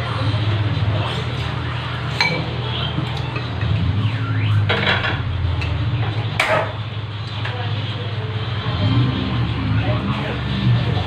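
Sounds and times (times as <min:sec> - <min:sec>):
cutlery clinking on a plate: 0:02.2 - 0:02.5.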